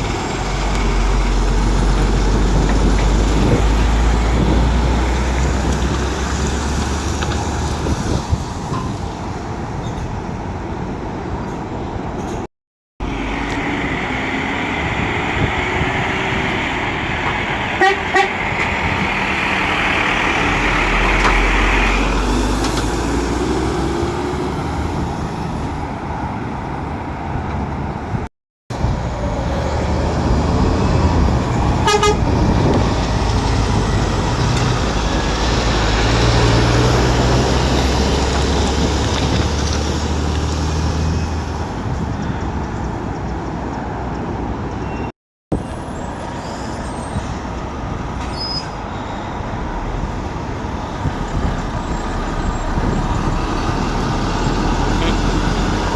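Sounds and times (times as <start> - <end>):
diesel lorry engines running: 0.0 - 44.7, 45.5 - 55.9
short horn toots: 17.7 - 18.7, 31.8 - 32.3.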